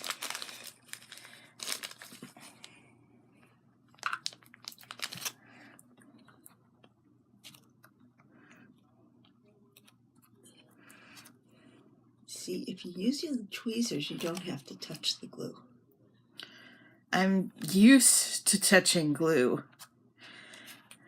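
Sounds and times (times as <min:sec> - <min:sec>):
material tearing and rustling: 0:00.0 - 0:02.3, 0:04.6 - 0:05.4.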